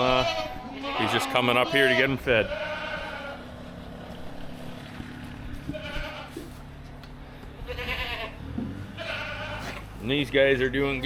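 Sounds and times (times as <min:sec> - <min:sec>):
goats bleating: 0:00.0 - 0:04.2, 0:05.3 - 0:06.6, 0:07.6 - 0:10.1
steady low hum: 0:00.0 - 0:11.0.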